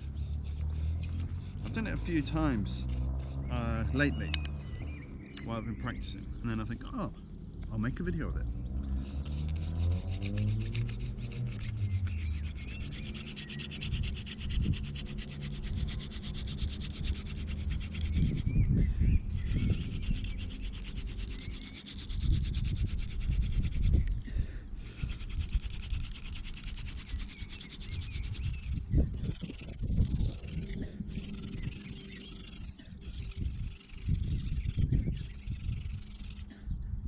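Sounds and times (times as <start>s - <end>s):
spindle scraping on hearth board: 0.0s - 3.6s, 9.0s - 18.3s, 19.4s - 23.9s, 24.8s - 36.5s
low rumbling: 0.0s - 37.0s.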